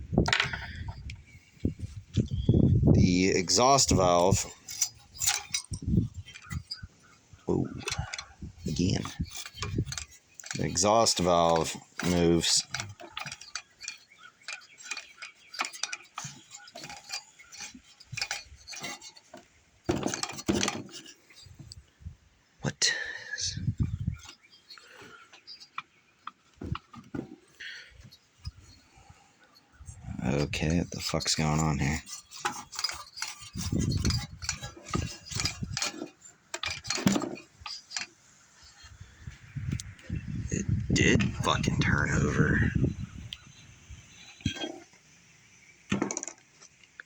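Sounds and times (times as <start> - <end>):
metal clatter: 0.2 - 21.9, 23.4 - 29.1, 29.8 - 39.0, 44.0 - 46.8
light metallic clicks and clinks: 3.4 - 6.9, 7.7 - 21.8.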